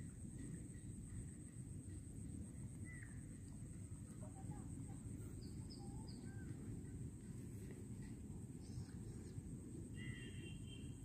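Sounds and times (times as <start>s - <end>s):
steady low rumble: 0.0s - 10.0s
constant high whine: 0.0s - 11.0s
faint birds chirping: 0.0s - 11.0s.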